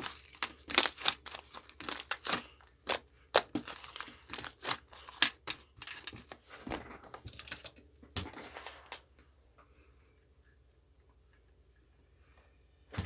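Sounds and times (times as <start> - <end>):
material crinkling and rustling: 0.0 - 8.9.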